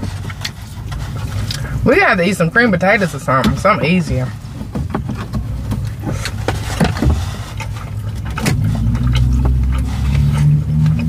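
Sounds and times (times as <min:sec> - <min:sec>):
chewing and mouth clicks: 0:00.0 - 0:01.8, 0:04.4 - 0:11.0
low vehicle engine hum: 0:00.0 - 0:11.0.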